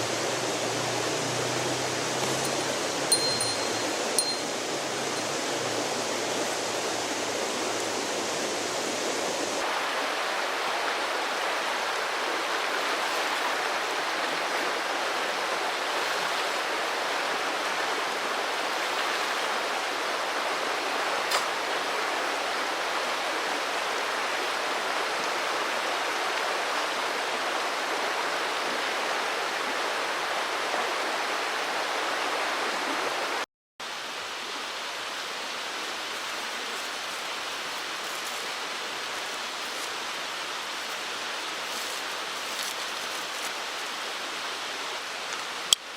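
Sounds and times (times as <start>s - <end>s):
stream flowing: 0.0s - 45.9s.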